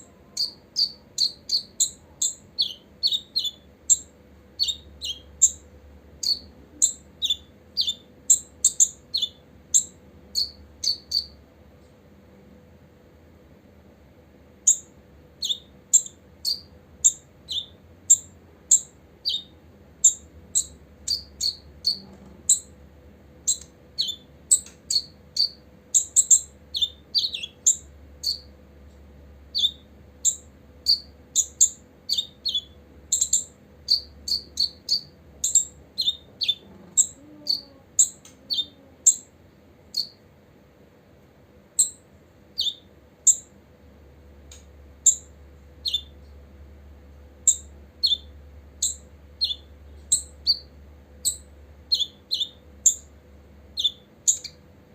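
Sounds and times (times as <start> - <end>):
bird chirping: 0.0 - 11.4, 14.6 - 22.8, 23.4 - 28.6, 29.5 - 40.2, 41.8 - 43.6, 44.5 - 46.4, 47.4 - 54.6.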